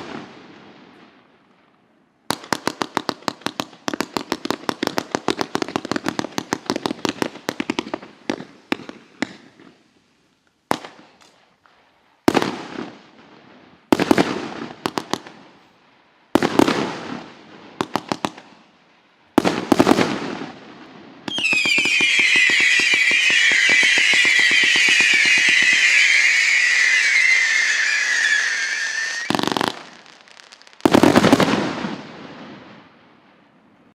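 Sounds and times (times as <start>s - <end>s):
firework crackle: 19.3s - 33.0s
whistling firework shots: 21.2s - 32.2s
firework launch pops: 21.3s - 30.0s.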